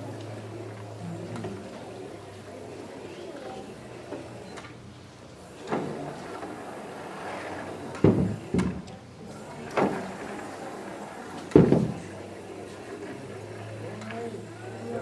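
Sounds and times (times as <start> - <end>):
objects thudding on floor: 8.0 - 8.9, 11.5 - 12.0.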